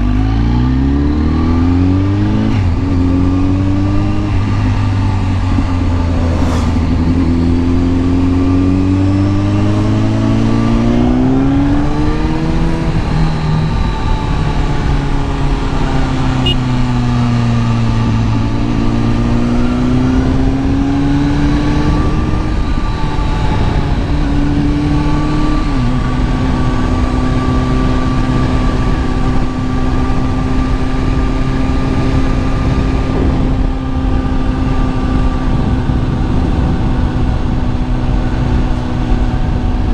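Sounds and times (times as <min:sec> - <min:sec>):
motorcycle engine revving: 0:00.0 - 0:39.9
wind rush: 0:03.4 - 0:15.5.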